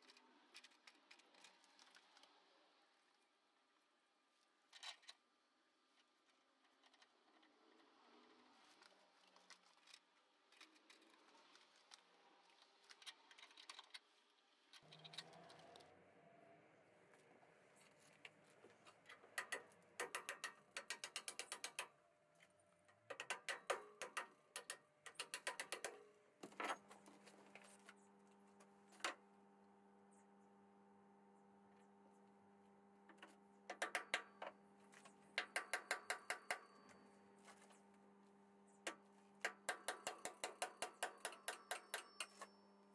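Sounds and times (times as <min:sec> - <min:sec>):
small hammer tapping metal: 0:19.3 - 0:21.9, 0:22.9 - 0:26.1, 0:33.1 - 0:34.6, 0:35.4 - 0:37.0, 0:38.9 - 0:42.6.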